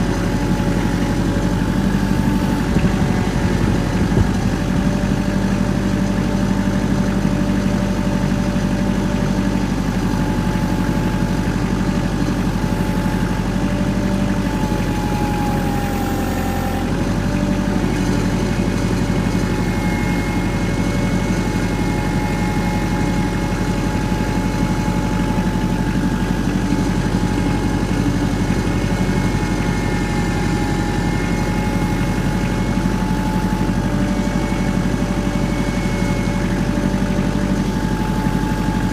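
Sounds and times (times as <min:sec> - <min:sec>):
engine idling: 0:00.0 - 0:38.9.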